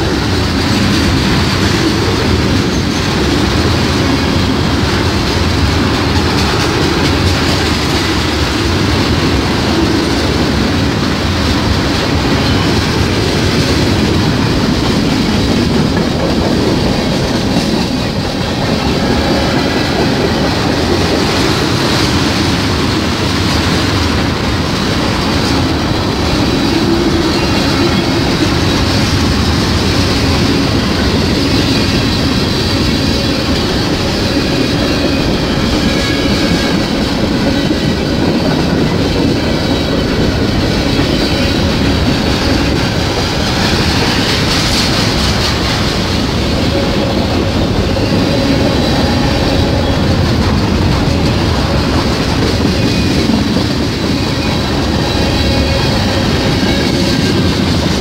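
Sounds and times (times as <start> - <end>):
freight train wheels clattering: 0.0 - 58.0
high wheel squeal: 24.6 - 58.0.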